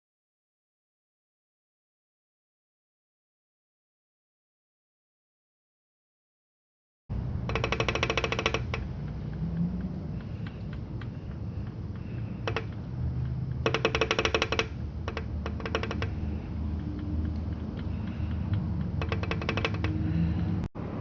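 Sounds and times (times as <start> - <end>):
rapid clicking: 7.1 - 20.7
low steady hum: 7.1 - 21.0.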